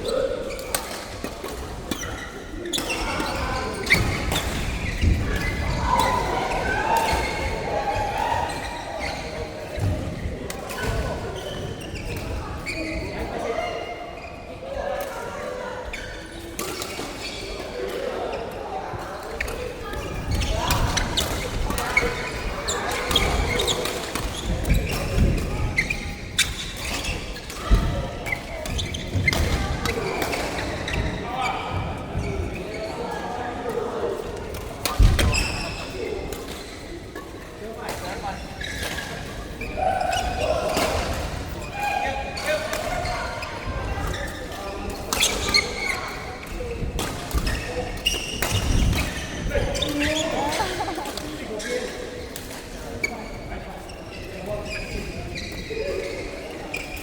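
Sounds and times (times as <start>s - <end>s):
sneakers squeaking on floor: 0.0s - 14.6s, 15.8s - 18.6s, 19.2s - 33.3s, 34.8s - 57.0s
indoor hall noise: 0.0s - 57.0s
badminton shuttle hits echoing: 19.4s - 31.0s, 47.0s - 52.6s.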